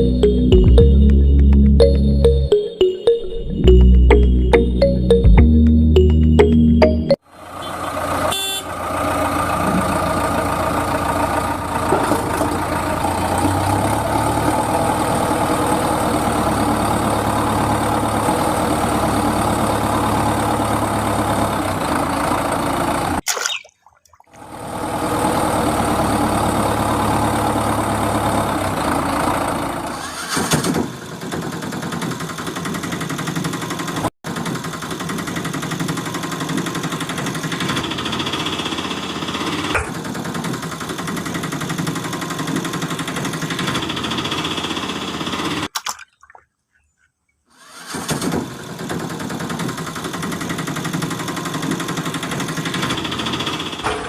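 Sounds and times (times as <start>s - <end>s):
vehicle engine idling: 7.3s - 23.2s, 24.4s - 30.3s, 30.9s - 45.7s.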